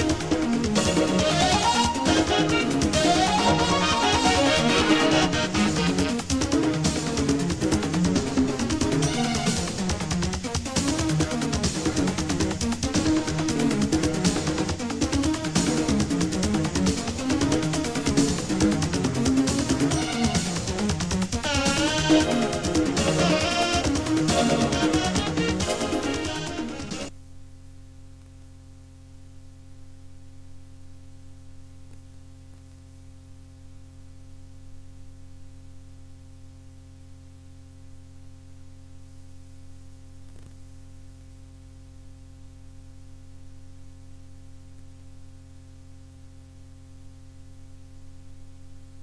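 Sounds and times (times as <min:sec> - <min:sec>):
music: 0:00.0 - 0:27.2
electrical mains hum with hiss: 0:00.0 - 0:49.0.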